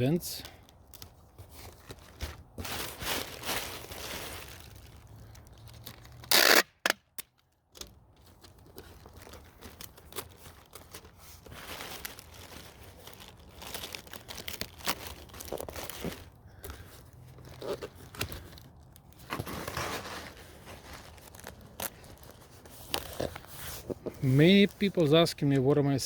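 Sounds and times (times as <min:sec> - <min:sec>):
packing paper crinkling: 0:00.0 - 0:26.0
packing tape ripping: 0:05.6 - 0:07.4, 0:08.7 - 0:24.3.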